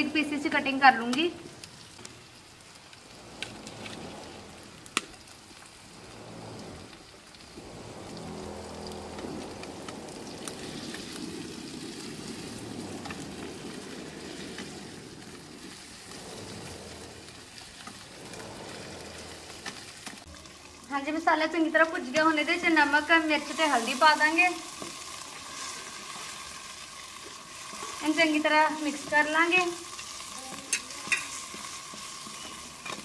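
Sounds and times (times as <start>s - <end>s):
food sizzling in a pan: 0.0s - 33.0s
spatula stirring: 22.1s - 33.0s.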